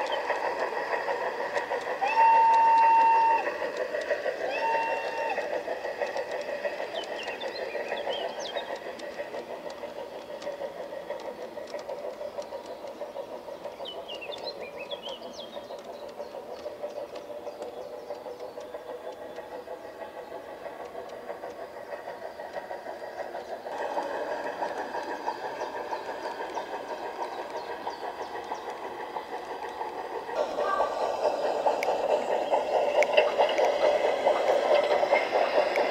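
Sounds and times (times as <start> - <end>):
model train rattling and chuffing: 0.0 - 35.9.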